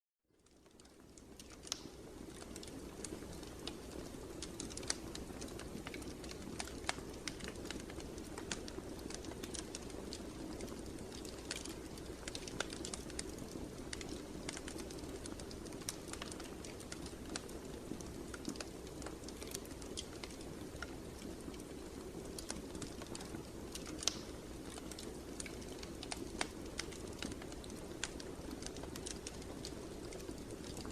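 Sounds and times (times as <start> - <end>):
fire crackling: 0.4 - 30.9.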